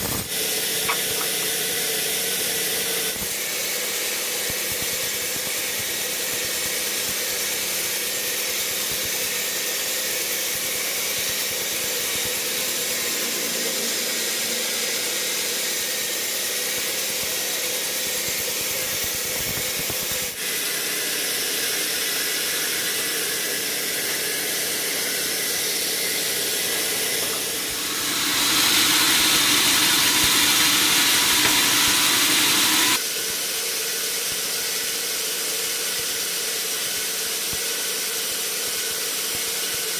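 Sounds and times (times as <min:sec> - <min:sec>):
sawmill hiss: 0:00.0 - 0:33.0
low machine hum: 0:12.2 - 0:16.4.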